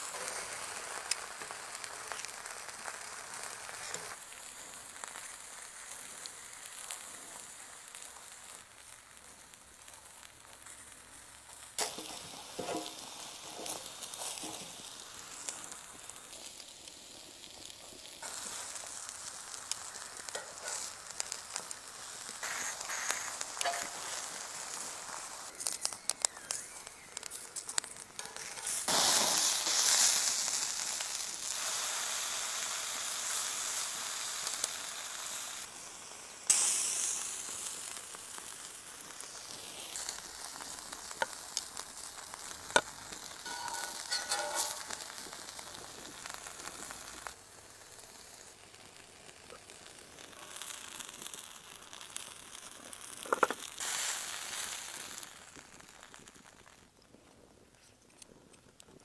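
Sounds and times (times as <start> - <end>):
vegetables sizzling on a griddle: 0.0 - 57.0.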